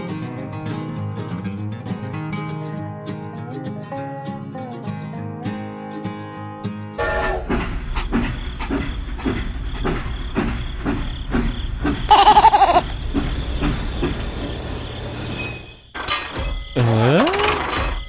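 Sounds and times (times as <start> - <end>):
train wheels clicking on rails: 7.4 - 14.7.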